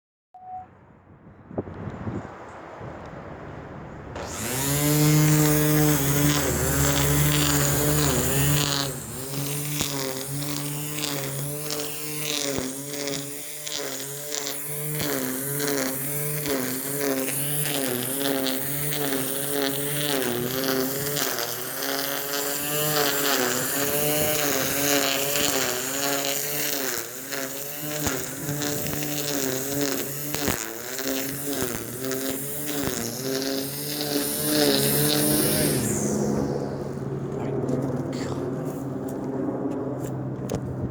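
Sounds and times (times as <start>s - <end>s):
wind noise on microphone: 0.6s - 10.6s, 40.4s - 40.9s
lawn mower engine running: 4.1s - 40.9s.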